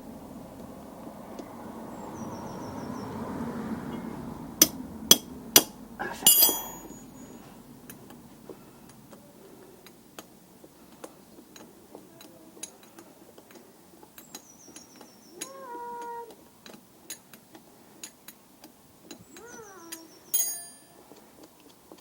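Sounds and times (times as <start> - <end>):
ringing metallic clatter: 3.9 - 7.4, 20.3 - 21.1
metal tools knocking together: 6.3 - 7.0.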